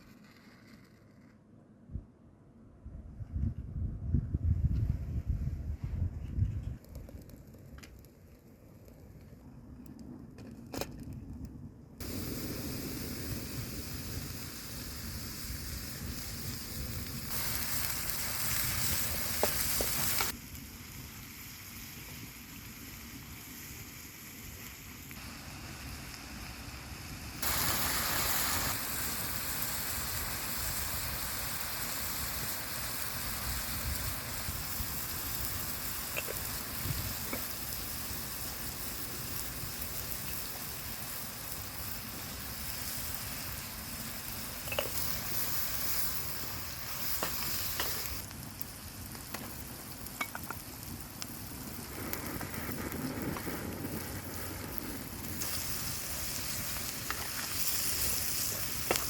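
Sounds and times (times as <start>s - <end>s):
food sizzling: 12.0s - 59.0s.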